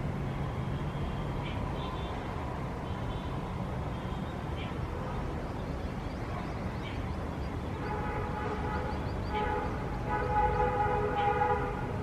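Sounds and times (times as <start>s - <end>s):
city traffic rumble: 0.0s - 12.0s
vehicle horn blasts: 7.9s - 11.9s.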